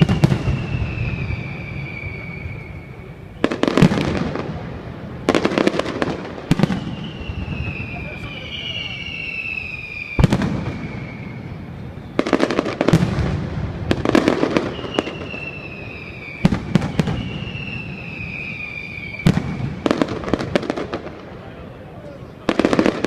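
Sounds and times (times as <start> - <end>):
falling firework whistles: 0.0 - 23.0
fireworks bangs and crackles: 0.0 - 23.0.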